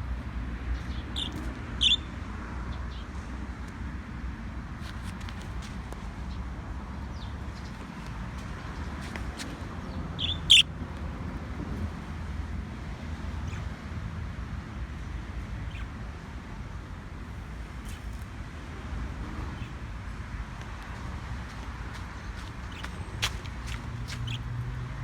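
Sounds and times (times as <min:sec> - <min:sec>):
budgie high chirp: 0:10.2 - 0:10.7.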